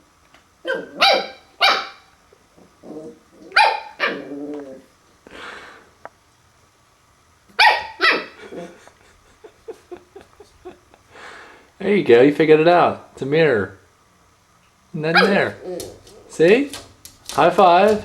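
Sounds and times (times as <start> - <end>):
puppy growling: 0.6 - 1.4, 2.5 - 5.0, 15.2 - 16.5
puppy barking: 0.6 - 2.1, 3.5 - 4.4, 7.6 - 8.6, 15.1 - 16.4.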